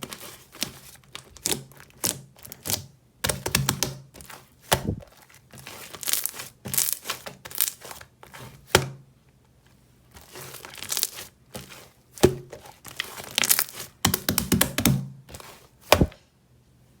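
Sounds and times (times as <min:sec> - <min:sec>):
slime squelching and crackling: 0:04.8 - 0:08.0, 0:10.2 - 0:14.0.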